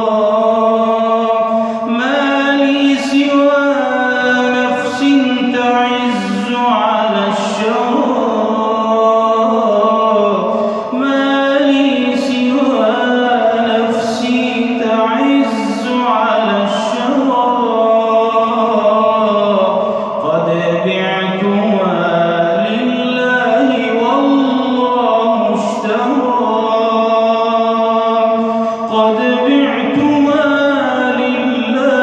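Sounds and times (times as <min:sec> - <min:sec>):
man singing: 0:00.0 - 0:32.0.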